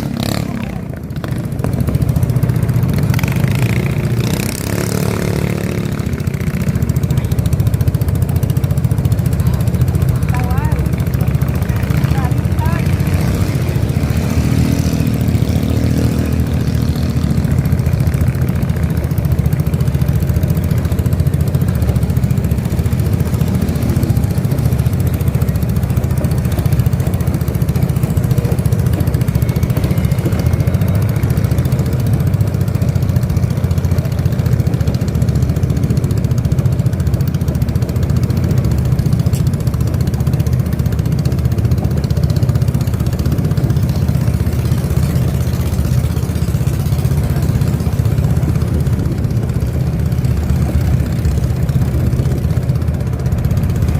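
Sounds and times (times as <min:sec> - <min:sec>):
boat engine running: 0:00.0 - 0:53.9.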